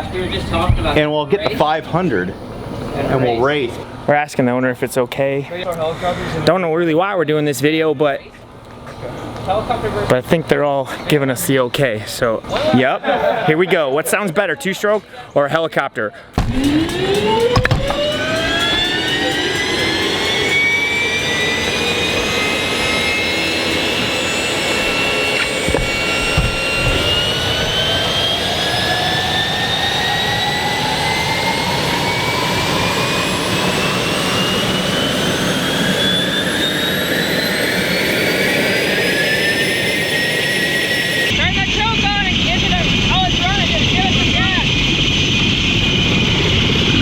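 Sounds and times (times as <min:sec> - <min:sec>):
helicopter turbine whine rising: 0:00.0 - 0:04.1, 0:16.3 - 0:47.0
brief knock: 0:16.4 - 0:19.0, 0:25.4 - 0:27.8.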